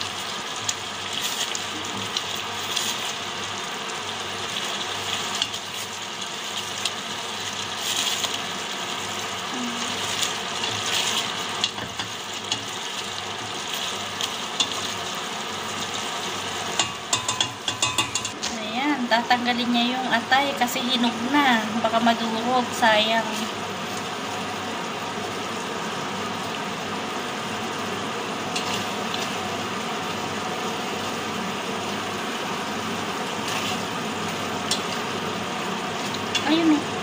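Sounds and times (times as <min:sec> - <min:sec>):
chicken sizzling in pot: 0:00.0 - 0:37.0
spoon scraping and clicking on pot: 0:16.8 - 0:18.4.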